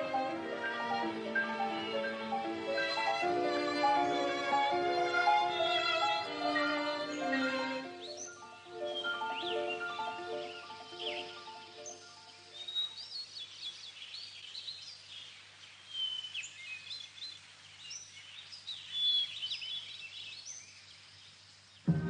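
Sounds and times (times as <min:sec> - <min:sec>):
music: 0:00.0 - 0:12.8
birds chirping: 0:00.0 - 0:22.0.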